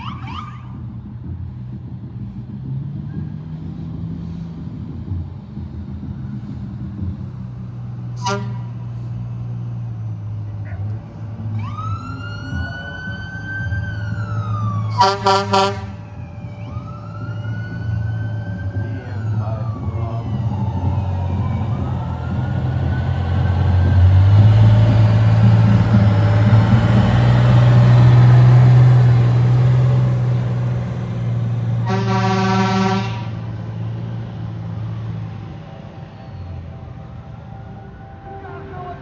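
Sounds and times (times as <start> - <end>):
siren wailing: 0.0 - 0.8, 11.6 - 29.5, 34.7 - 39.0
heavy truck engine rumble: 0.0 - 39.0
horn blast: 8.2 - 8.9, 14.9 - 16.0, 31.8 - 33.6.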